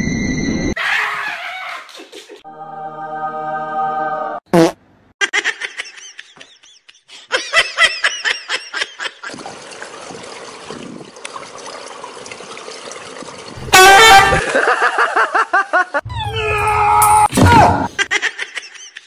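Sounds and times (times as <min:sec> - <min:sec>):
person laughing: 0:05.2 - 0:09.4
water noise: 0:09.2 - 0:15.2.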